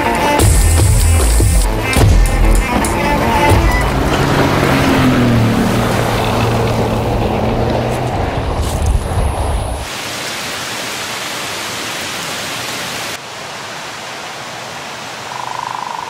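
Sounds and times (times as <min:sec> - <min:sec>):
rushing water: 0:00.0 - 0:16.0
vehicle engine: 0:00.4 - 0:09.9.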